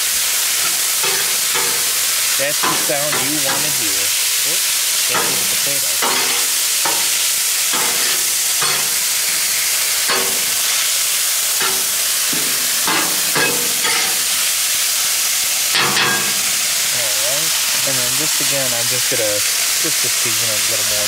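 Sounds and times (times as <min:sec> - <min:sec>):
food sizzling on a griddle: 0:00.0 - 0:21.0
metal spatula scraping griddle: 0:00.4 - 0:04.3, 0:05.1 - 0:14.6.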